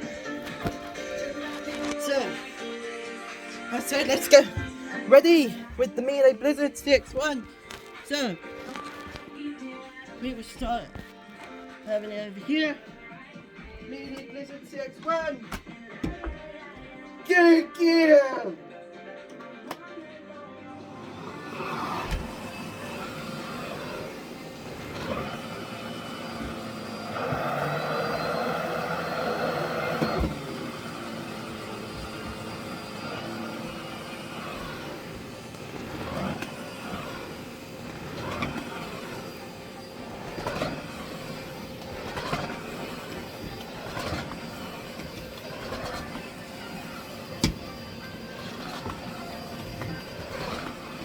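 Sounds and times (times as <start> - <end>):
vacuum cleaner motor whine: 0.0 - 11.7, 20.6 - 51.0.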